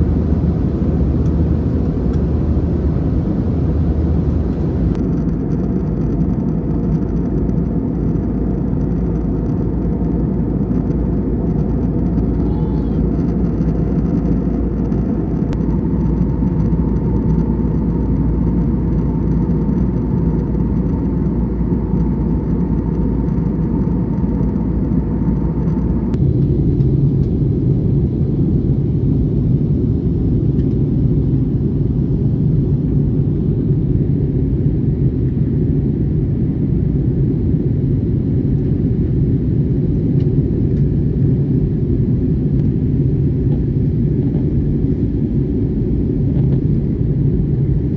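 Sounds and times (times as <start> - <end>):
faint steady tone: 0.0 - 5.0
jet engine cabin rumble: 0.0 - 5.2, 11.1 - 47.9.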